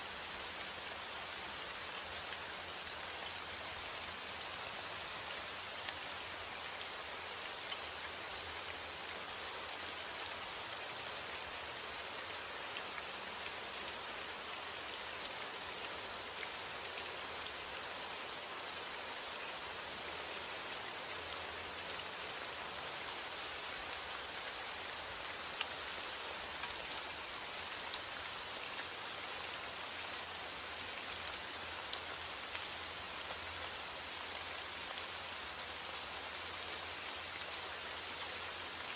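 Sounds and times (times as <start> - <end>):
rain drops ticking: 0.6 - 38.9.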